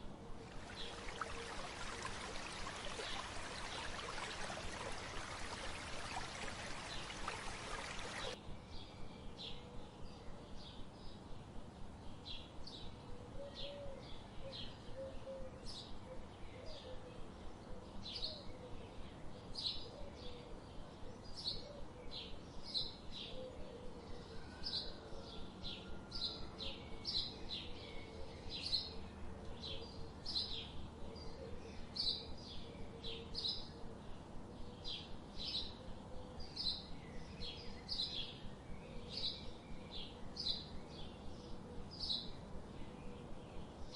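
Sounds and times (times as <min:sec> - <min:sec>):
birds chirping: 0:00.5 - 0:08.4.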